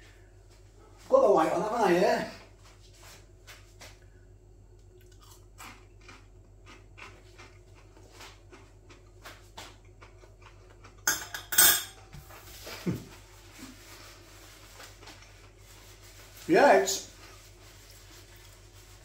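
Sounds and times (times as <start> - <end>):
chewing crispy chicken burger: 4.8 - 11.1.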